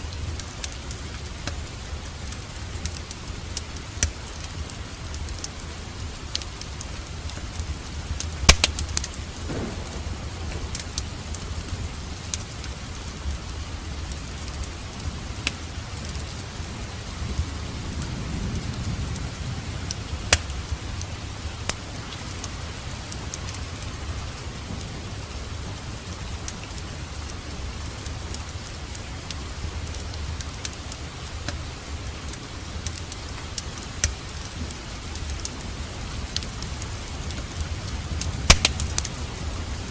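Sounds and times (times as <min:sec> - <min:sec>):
steady rain: 0:00.0 - 0:39.9
wood fire crackling: 0:00.0 - 0:39.9
distant thunder rumble: 0:08.3 - 0:14.0, 0:16.5 - 0:22.0.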